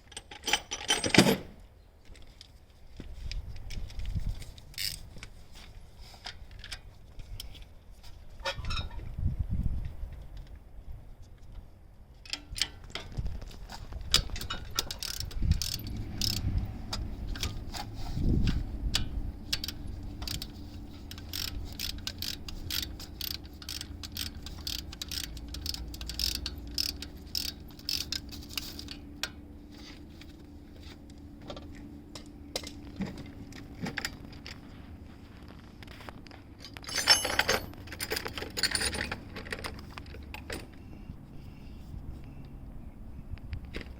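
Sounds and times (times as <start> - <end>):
metal tools clinking: 0.0 - 1.5, 36.6 - 40.8
steady low hum: 9.2 - 43.9
socket ratchet clicking: 14.2 - 17.6, 19.0 - 29.0.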